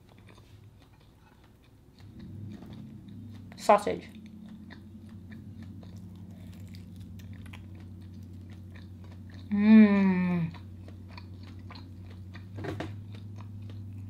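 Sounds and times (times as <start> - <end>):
wet chewing mouth clicks: 0.0 - 14.0
person humming mmm: 9.4 - 10.7.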